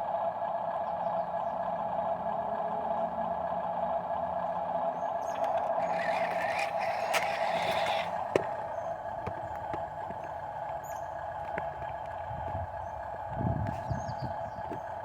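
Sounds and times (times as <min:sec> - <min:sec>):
dump truck mechanical whine: 0:00.0 - 0:15.0
rattle: 0:05.3 - 0:08.9.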